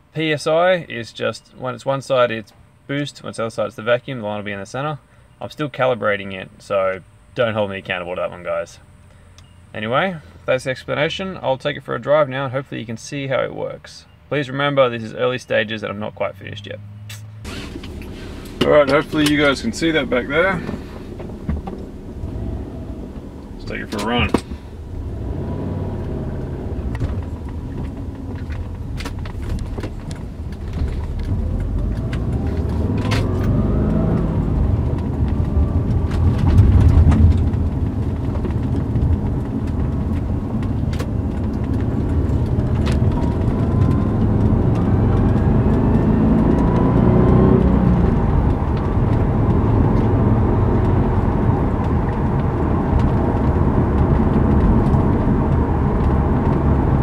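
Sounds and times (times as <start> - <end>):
road rumble: 0.0 - 57.0
car engine accelerating: 16.4 - 57.0.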